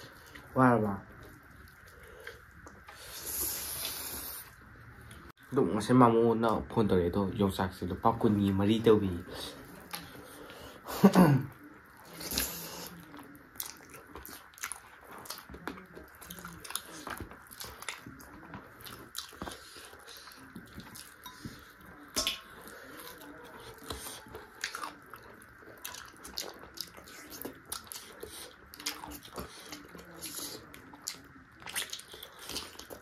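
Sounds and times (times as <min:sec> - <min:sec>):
biting and chewing crunches: 0:12.0 - 0:21.7.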